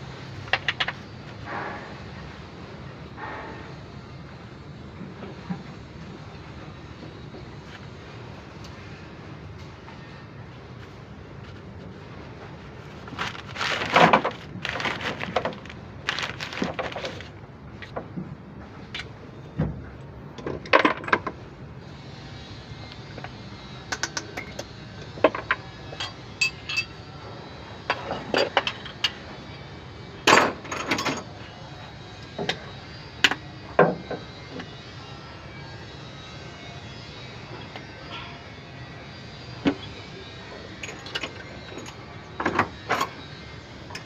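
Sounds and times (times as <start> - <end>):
metal tools and parts clinking: 26.0 - 27.0, 40.8 - 43.2.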